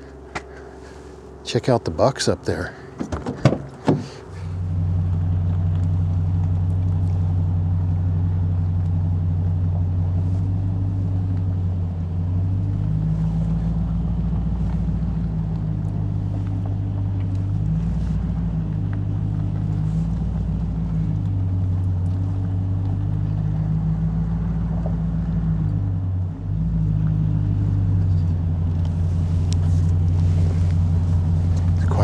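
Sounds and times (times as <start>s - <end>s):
road noise: 0.0s - 32.0s
truck engine running: 0.0s - 32.0s.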